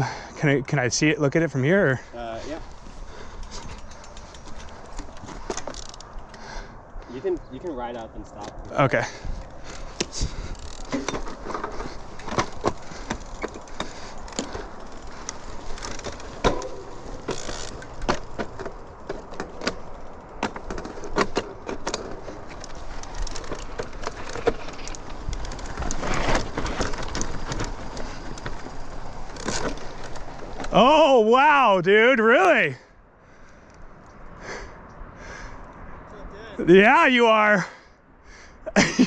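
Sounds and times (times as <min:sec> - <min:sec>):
mountain bike tyres on dirt trail: 0:00.0 - 0:39.0
bike knocking and rattling: 0:01.3 - 0:31.1.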